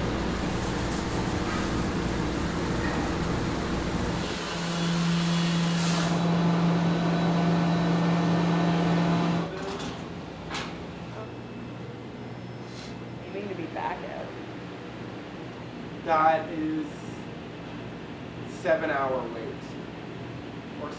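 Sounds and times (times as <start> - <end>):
machine humming: 0.0 - 18.6.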